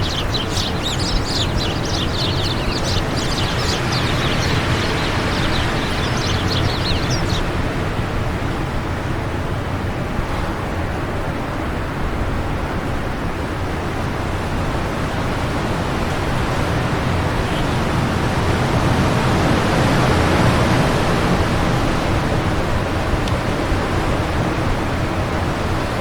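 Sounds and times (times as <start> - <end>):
wind blowing: 0.0 - 11.9.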